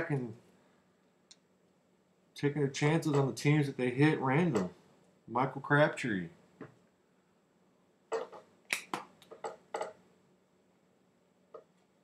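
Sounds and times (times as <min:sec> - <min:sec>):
cards clicking and snapping: 0:08.7 - 0:09.4.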